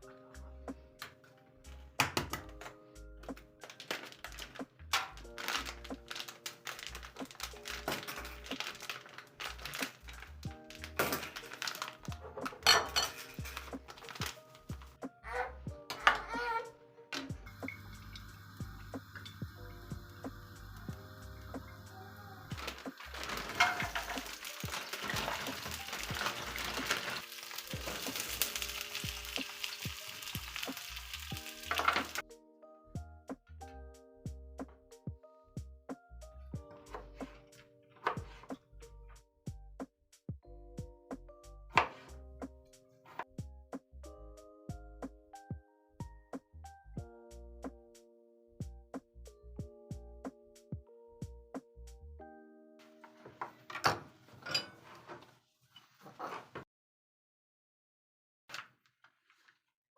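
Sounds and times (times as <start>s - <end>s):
soft background music: 0.0s - 55.2s
rustling and crinkling: 2.5s - 15.0s, 22.5s - 32.2s, 36.6s - 39.0s, 52.8s - 56.6s, 58.5s - 59.7s
food sizzling in a pan: 17.4s - 32.2s.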